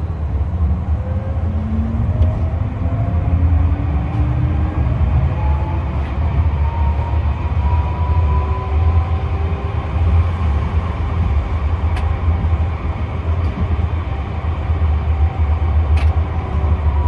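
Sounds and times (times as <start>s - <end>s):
tram rumbling on track: 0.0s - 17.0s.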